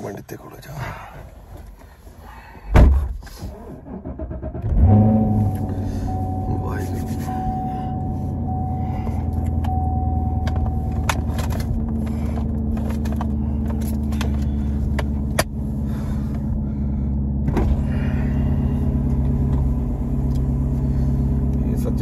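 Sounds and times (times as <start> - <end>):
thump: 2.7 - 3.2
car engine idling: 3.3 - 22.0
chime tone: 4.8 - 10.8.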